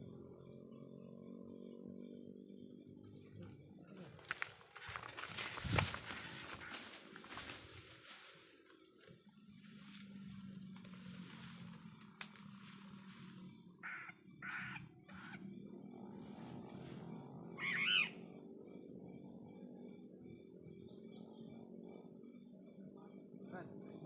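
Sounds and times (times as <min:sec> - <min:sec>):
bird giving harsh rasping calls: 0:13.6 - 0:15.4, 0:17.6 - 0:18.2.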